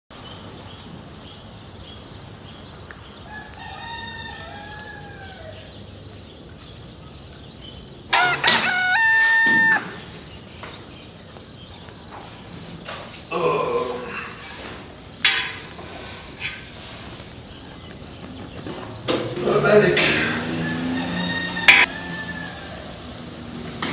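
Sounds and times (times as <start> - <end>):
crickets chirping: 0.2 - 23.9
rooster crowing: 3.2 - 5.7, 8.1 - 10.2, 20.0 - 23.4.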